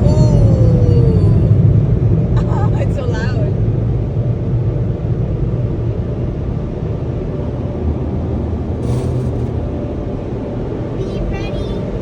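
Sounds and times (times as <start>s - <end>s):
car wash low rumble: 0.0s - 12.0s
short hiss: 8.8s - 9.5s.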